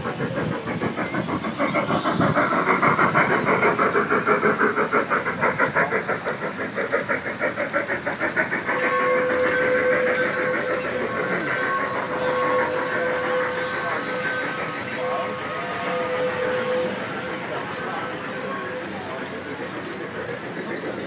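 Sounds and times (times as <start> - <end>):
model train chuffing: 0.0 - 21.0
train whistle: 0.7 - 4.6, 8.5 - 20.9.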